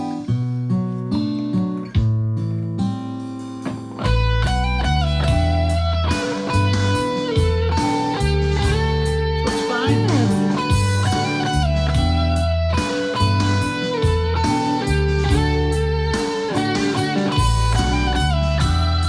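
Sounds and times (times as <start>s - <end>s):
backing track with bass line: 1.8s - 19.0s
electric guitar lead notes: 4.0s - 19.0s.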